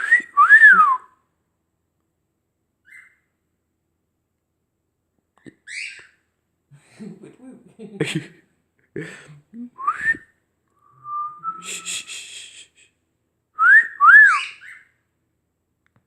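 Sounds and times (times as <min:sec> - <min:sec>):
pet bird whistling: 0:13.6 - 0:14.9.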